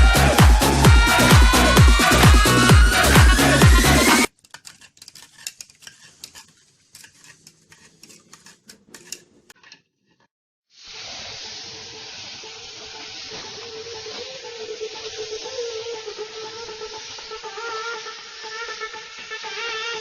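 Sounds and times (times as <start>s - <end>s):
paint spray gun hissing: 10.7s - 20.0s.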